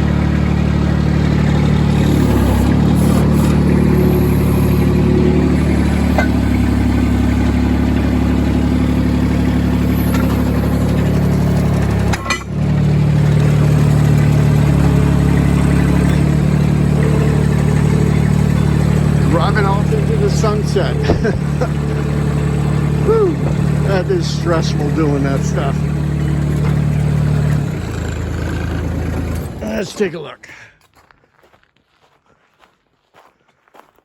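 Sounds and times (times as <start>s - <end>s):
tractor engine running: 0.0s - 30.4s.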